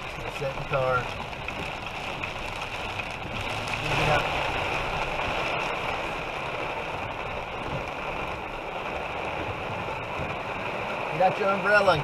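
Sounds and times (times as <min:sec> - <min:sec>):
heavy rain on car roof: 0:00.0 - 0:12.0.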